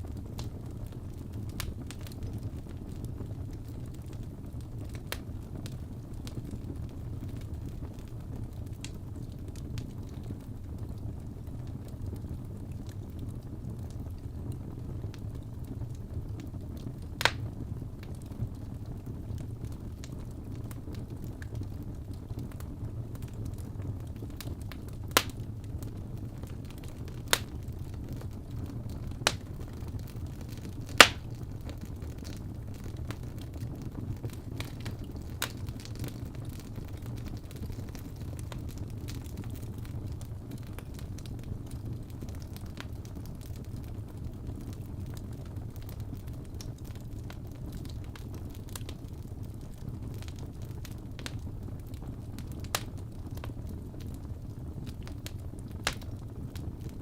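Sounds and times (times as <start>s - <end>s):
fire popping: 0.0s - 57.0s
low rumble of fire: 0.0s - 57.0s
wood fire crackling: 0.0s - 57.0s
sharp pops of burning wood: 17.2s - 18.2s, 23.1s - 33.6s, 34.2s - 39.9s, 49.8s - 54.2s, 55.0s - 57.0s.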